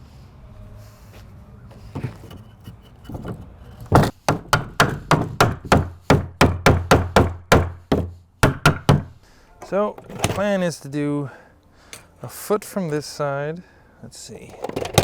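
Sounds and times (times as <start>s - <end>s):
hammer striking wood: 3.1s - 9.2s.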